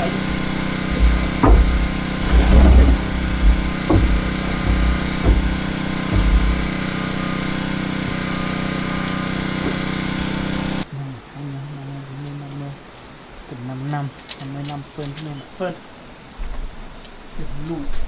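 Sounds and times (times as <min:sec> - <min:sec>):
dull knocks and thumps: 0:00.0 - 0:10.8
small engine running: 0:00.0 - 0:10.9.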